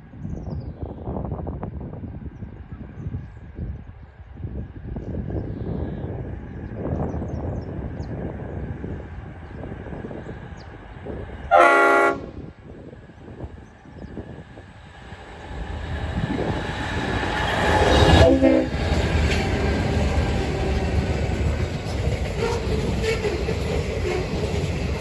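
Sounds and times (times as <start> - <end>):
train rumbling past: 4.2 - 25.0
train horn blast: 11.5 - 12.4, 18.1 - 19.0, 22.3 - 23.4.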